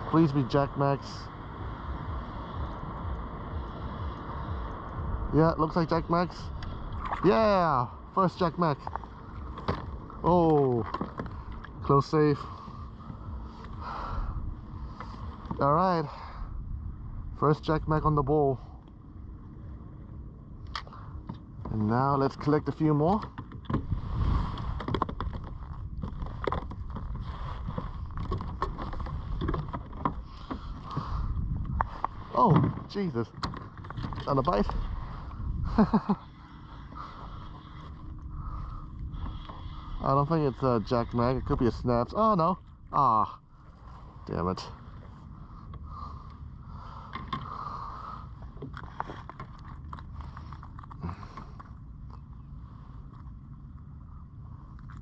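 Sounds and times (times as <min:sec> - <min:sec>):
wind buffeting microphone: 0:00.0 - 0:55.0
fishing tackle clicks and scrapes: 0:20.6 - 0:35.5, 0:47.0 - 0:53.9.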